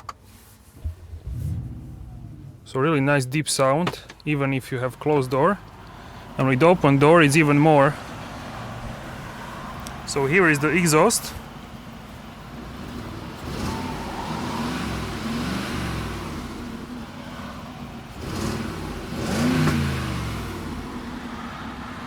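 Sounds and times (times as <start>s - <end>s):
deep engine exhaust revving: 0.8s - 2.9s, 12.5s - 21.3s.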